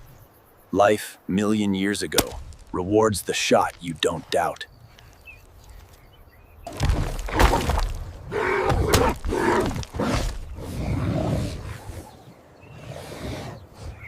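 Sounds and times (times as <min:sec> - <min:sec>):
crashes and thuds: 0:06.7 - 0:10.4.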